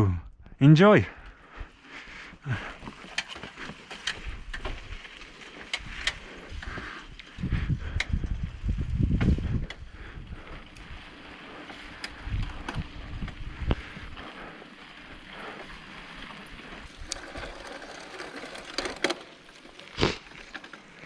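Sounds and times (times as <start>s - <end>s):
bicycle tyre and wind noise: 0.9s - 21.0s
bike clicks and knocks: 2.7s - 9.9s, 11.6s - 13.9s, 15.6s - 21.0s.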